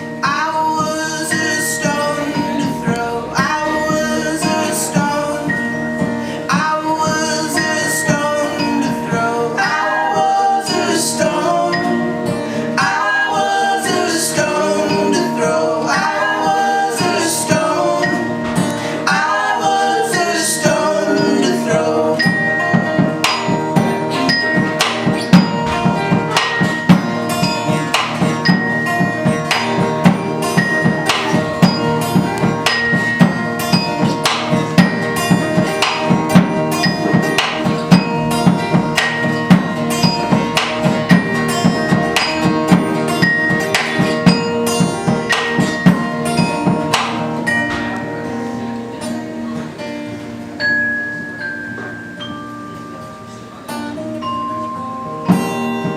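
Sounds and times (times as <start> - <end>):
high ringing notes: 0.0 - 55.9
live band playing: 0.0 - 55.9
person singing: 0.2 - 48.3
sharp percussive hits: 15.9 - 48.2.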